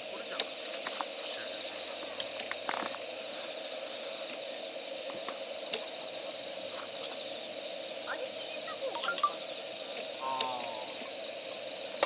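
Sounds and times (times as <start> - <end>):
campfire crackling and popping: 1.9 - 3.3
steady high-pitched tone: 8.0 - 11.3.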